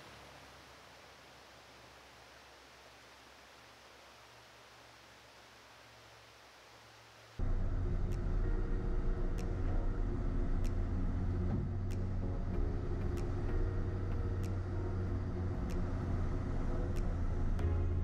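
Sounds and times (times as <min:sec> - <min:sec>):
pickup engine rumble: 0:07.4 - 0:18.0.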